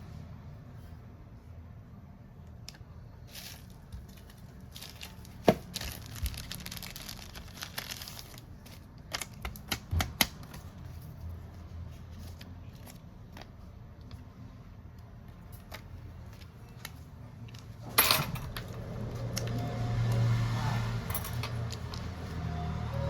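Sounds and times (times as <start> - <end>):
plastic film crinkling: 3.3 - 10.7.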